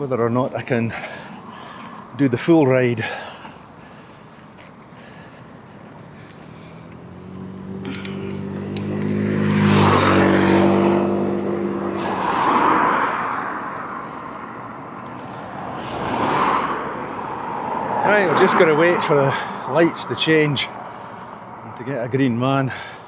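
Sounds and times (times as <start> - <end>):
vehicle tyre noise: 0.0 - 23.0
car passing close by: 6.1 - 21.8.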